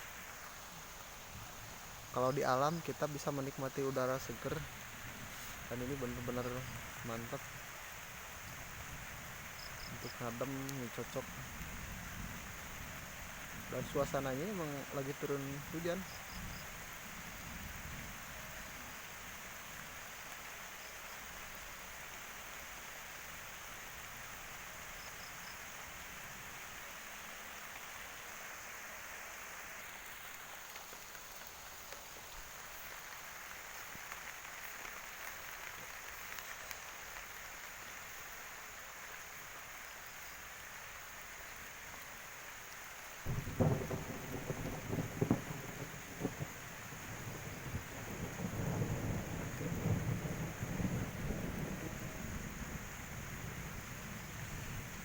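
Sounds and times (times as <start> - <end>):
steady rain: 0.0 - 55.0
thunder rumbling: 1.3 - 19.0, 43.2 - 55.0.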